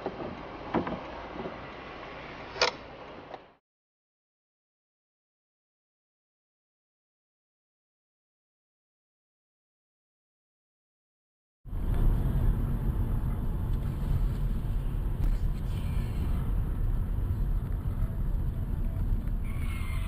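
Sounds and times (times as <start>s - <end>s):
car road and engine rumble: 0.0s - 3.6s, 11.7s - 20.0s.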